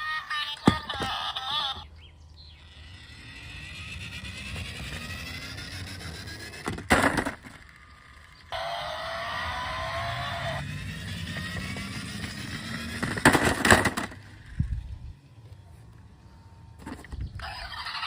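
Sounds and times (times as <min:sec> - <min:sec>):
car engine revving: 0:08.5 - 0:13.3.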